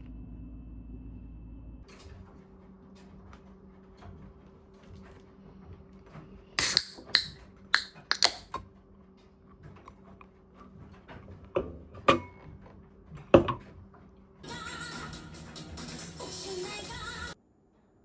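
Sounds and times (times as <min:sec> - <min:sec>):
faint steady hum: 0:00.0 - 0:02.1
sharp clicks and knocks: 0:06.6 - 0:08.7.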